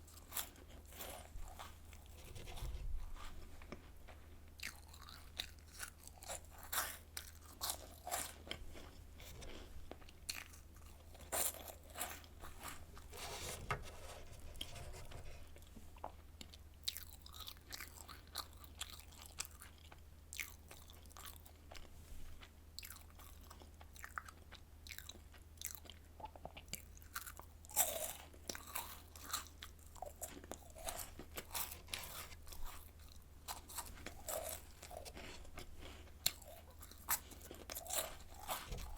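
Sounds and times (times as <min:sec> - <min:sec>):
crunching and chewing snacks: 0:00.0 - 0:13.6, 0:15.6 - 0:38.9
faint low hum: 0:00.0 - 0:38.9.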